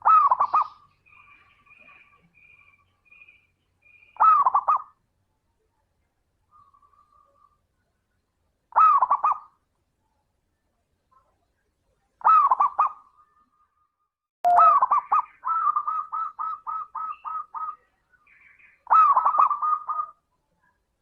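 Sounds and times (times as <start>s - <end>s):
dove cooing: 0.0s - 2.2s, 4.2s - 4.9s, 12.2s - 13.0s, 14.5s - 17.8s, 18.8s - 20.2s.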